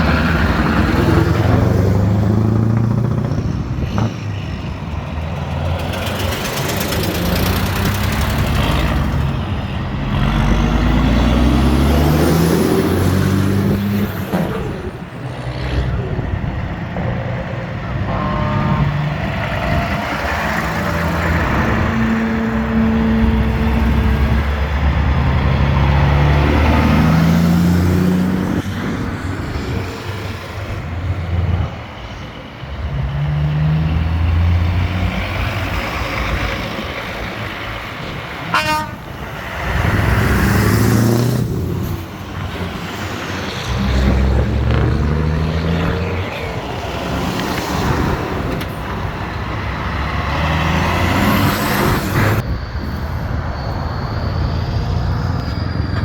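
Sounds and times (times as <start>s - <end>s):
trucks driving past: 0.0s - 56.0s
truck horn toot: 17.9s - 19.9s, 20.8s - 24.7s, 38.4s - 39.4s.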